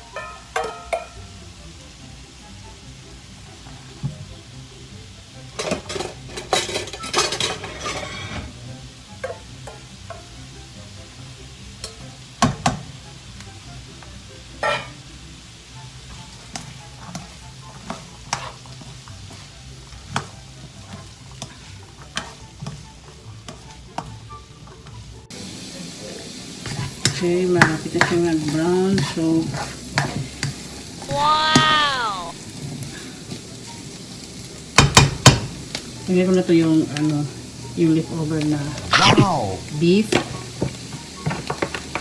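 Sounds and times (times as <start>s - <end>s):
food frying in a pan: 0.0s - 42.0s
utensil scraping a pan: 5.6s - 8.6s, 17.0s - 19.4s.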